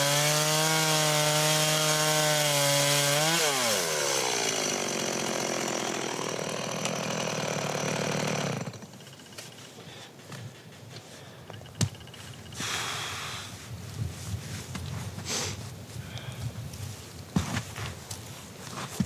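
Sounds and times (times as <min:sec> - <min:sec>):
chainsaw engine running: 0:00.0 - 0:09.6.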